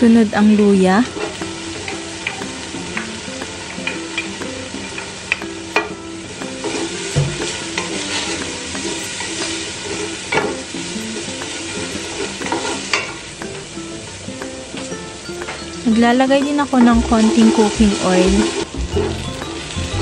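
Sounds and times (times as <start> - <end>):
garlic sizzling in oil: 0.0 - 20.0
wooden spatula knocking on pot: 1.2 - 9.8.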